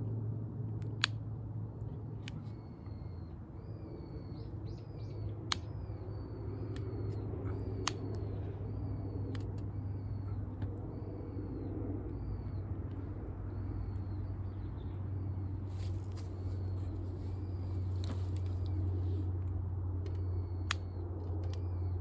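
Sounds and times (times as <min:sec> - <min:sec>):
low background rumble: 0:00.0 - 0:22.0
bird calling: 0:02.2 - 0:19.3.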